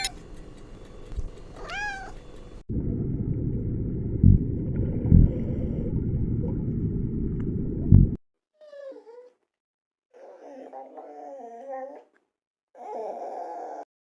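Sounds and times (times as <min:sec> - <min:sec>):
loud low rumbling: 0:02.7 - 0:08.2.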